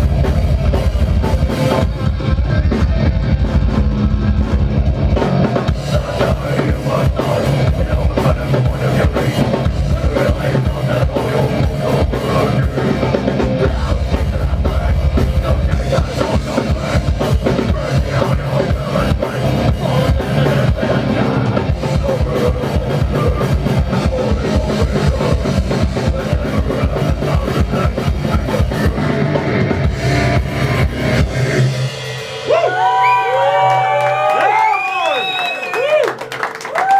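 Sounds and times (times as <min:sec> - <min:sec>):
fast bass drum pattern: 0:00.0 - 0:34.3
death metal band playing: 0:00.0 - 0:36.0.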